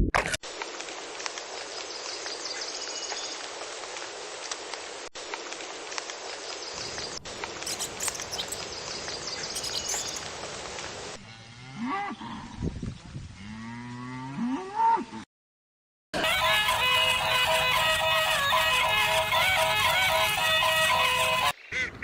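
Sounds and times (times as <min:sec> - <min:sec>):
background hiss: 0:02.6 - 0:11.2
cow mooing: 0:11.2 - 0:12.5.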